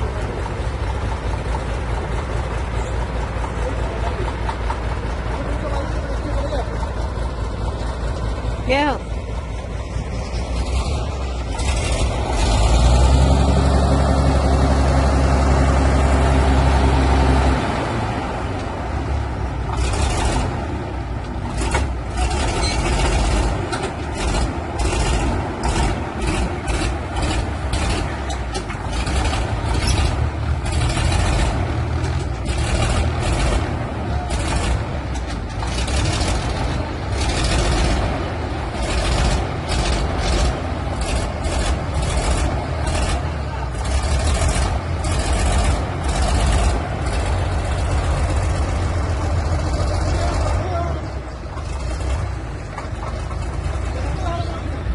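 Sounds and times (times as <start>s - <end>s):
tractor diesel engine: 0.0s - 54.9s
sharp knocks and clanks: 21.2s - 38.1s.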